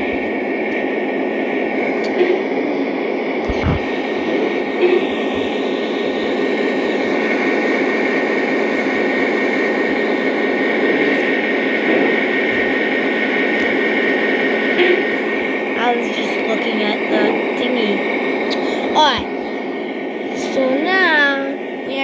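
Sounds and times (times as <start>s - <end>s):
faint steady whine: 0.0s - 22.0s
model train rumbling on rails: 4.0s - 18.2s.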